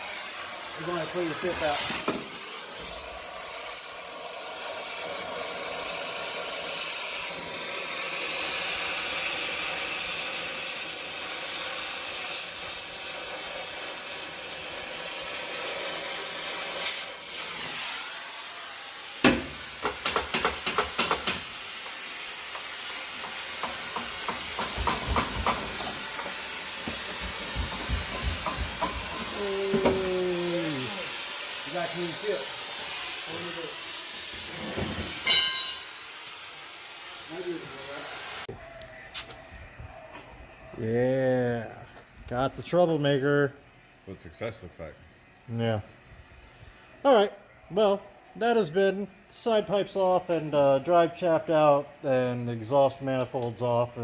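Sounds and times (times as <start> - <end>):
shop vacuum running: 0.0 - 54.0.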